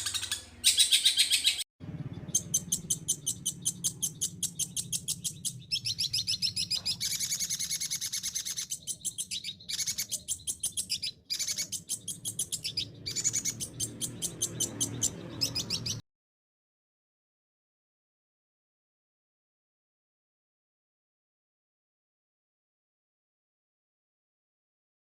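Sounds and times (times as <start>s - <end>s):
bird chattering song: 0.0s - 16.0s.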